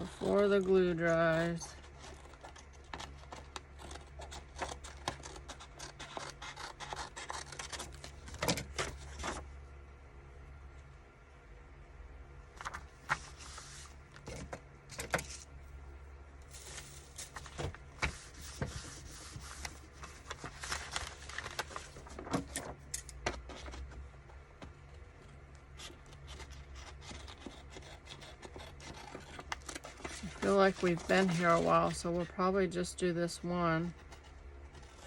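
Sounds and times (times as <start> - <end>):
steady low hum: 0.0 - 35.0
paper rustling: 12.6 - 15.5, 16.5 - 24.0, 25.8 - 32.3.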